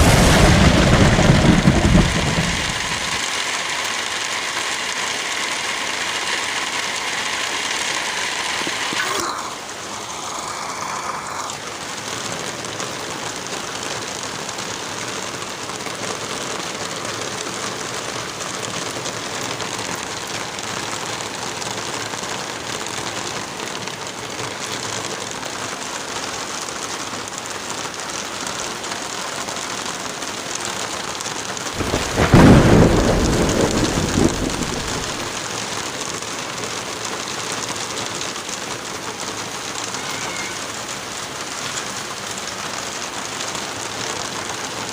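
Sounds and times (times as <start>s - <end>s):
thunder rumble: 0.0s - 3.2s, 31.8s - 35.4s
steady rain: 0.0s - 44.9s.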